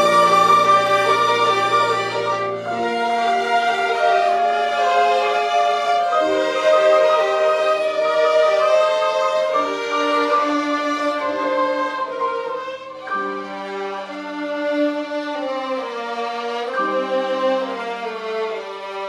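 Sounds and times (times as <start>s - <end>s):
violin ensemble slow melody: 0.0s - 19.0s.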